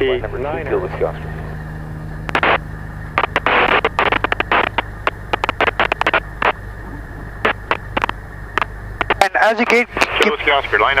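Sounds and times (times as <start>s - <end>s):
aircraft engine low hum: 0.0s - 11.0s
static crackles over headset: 2.2s - 11.0s.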